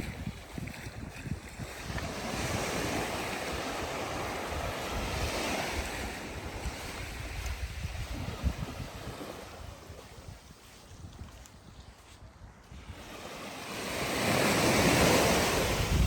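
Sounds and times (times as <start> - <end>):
wind buffeting microphone: 0.0 - 16.0
wave breaking on beach: 12.8 - 16.0.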